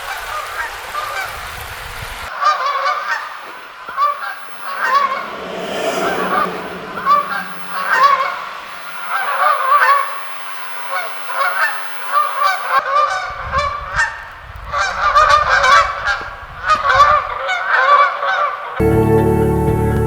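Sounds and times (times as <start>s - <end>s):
low rumble: 4.5s - 9.0s
music: 18.8s - 20.0s.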